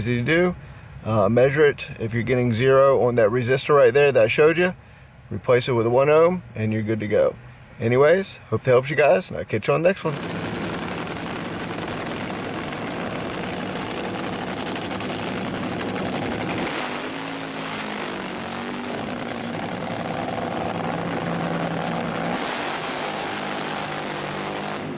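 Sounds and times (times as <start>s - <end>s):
machine humming: 10.1s - 24.1s.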